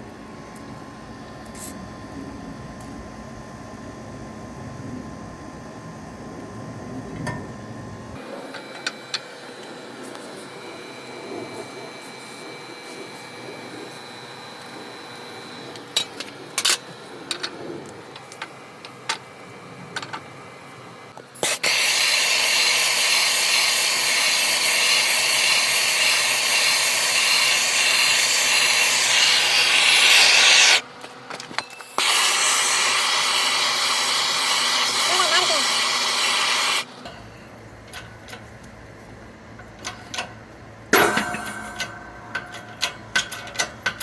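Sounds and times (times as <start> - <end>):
loud spraying hiss: 21.4 - 30.8, 32.0 - 36.9.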